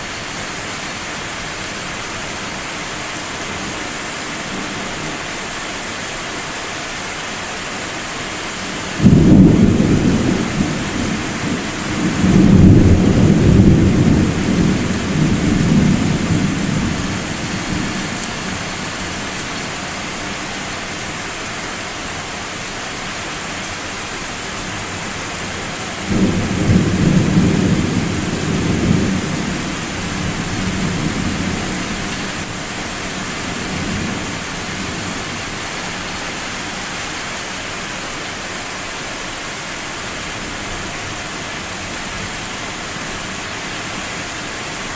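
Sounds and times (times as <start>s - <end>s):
steady rain: 0.0s - 44.9s
rolling thunder: 9.0s - 18.6s, 26.0s - 35.4s.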